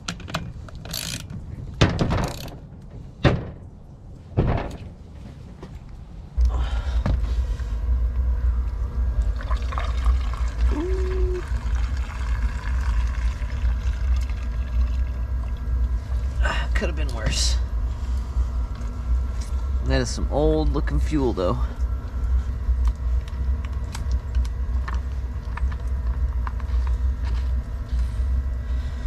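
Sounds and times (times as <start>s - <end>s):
fuel pouring out: 9.2s - 16.3s.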